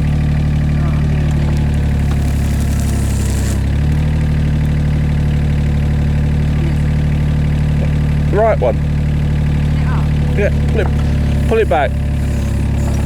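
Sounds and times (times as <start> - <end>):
excavator diesel engine running: 0.0 - 13.0
hydraulic hiss: 1.5 - 4.1, 10.5 - 13.0.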